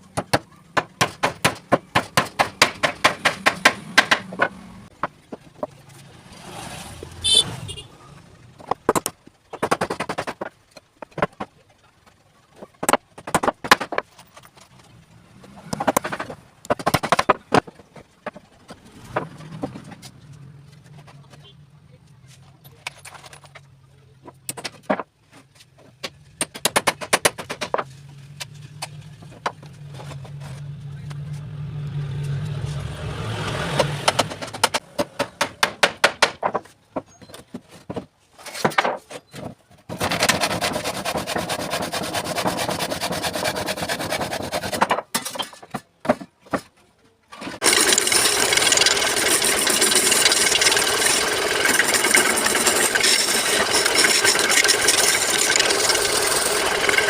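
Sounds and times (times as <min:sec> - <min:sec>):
knocks and tapping on wood: 0:00.2 - 0:05.8, 0:25.8 - 0:27.9, 0:28.8 - 0:30.4, 0:33.7 - 0:39.6
tool rasping wood: 0:39.9 - 0:45.0, 0:47.6 - 0:57.0.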